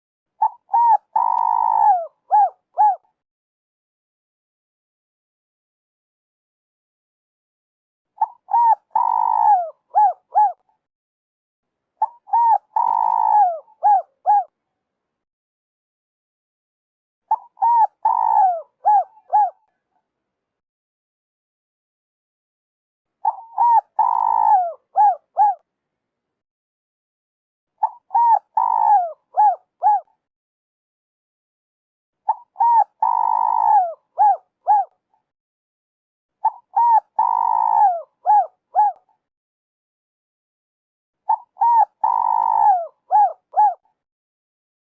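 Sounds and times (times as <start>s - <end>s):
dove cooing: 0.4s - 3.1s, 8.2s - 10.7s, 12.0s - 14.5s, 17.3s - 19.8s, 23.2s - 25.6s, 27.8s - 30.2s, 32.3s - 35.0s, 36.4s - 39.0s, 41.3s - 43.9s.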